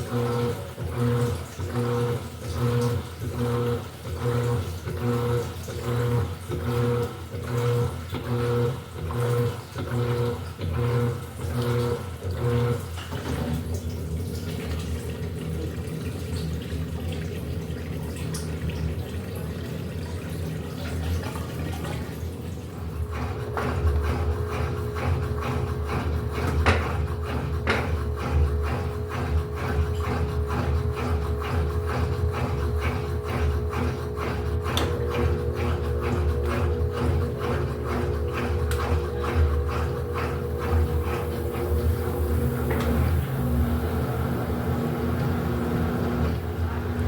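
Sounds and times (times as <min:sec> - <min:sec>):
steady water noise: 0:00.0 - 0:47.0
washing machine motor humming: 0:00.0 - 0:47.0
water sloshing: 0:12.6 - 0:23.1.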